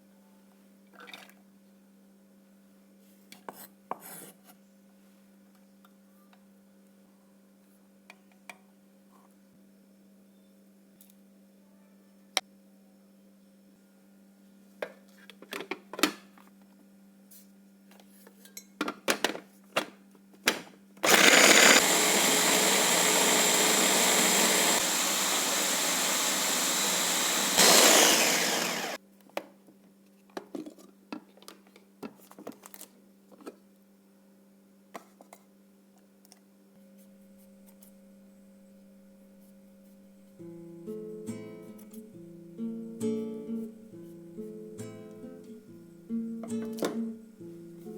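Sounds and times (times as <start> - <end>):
electric blender running: 21.0 - 29.0.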